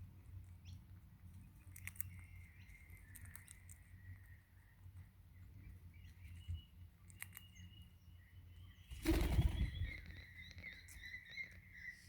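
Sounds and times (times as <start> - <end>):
bird wings flapping: 8.9 - 10.0.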